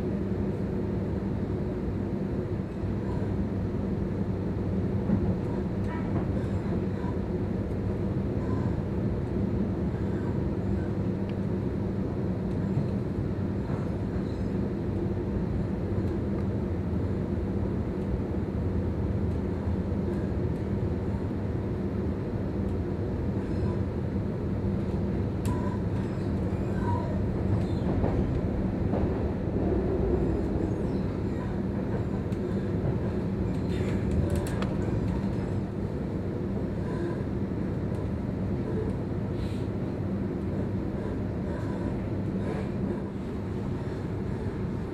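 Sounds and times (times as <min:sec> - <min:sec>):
electric train rumbling: 0:00.0 - 0:44.9
faint clicks: 0:33.5 - 0:35.4.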